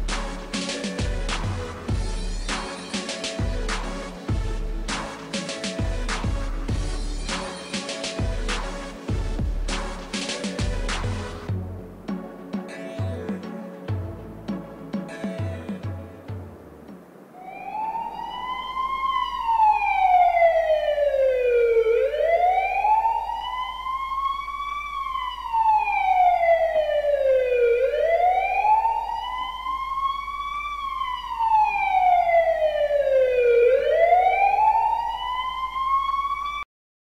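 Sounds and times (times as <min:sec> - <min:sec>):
siren wailing: 0:17.2 - 0:36.7.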